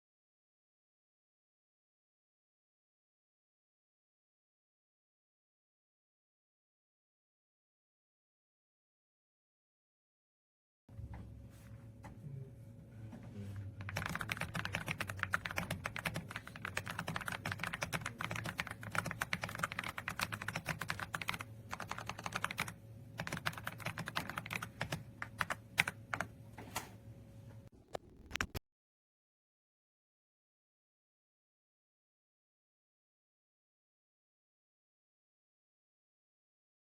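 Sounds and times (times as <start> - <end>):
mechanical keyboard typing: 13.8 - 26.3, 27.9 - 28.6.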